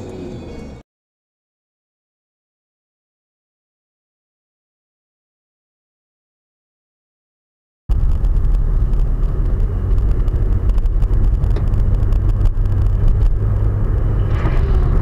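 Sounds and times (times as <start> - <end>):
car interior engine and road rumble: 7.9 - 15.0.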